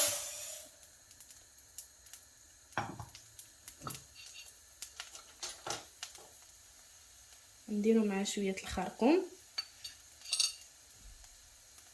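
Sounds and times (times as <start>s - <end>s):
faint hiss of frying: 0.0s - 11.9s
utensil scraping frying pan: 3.8s - 6.3s.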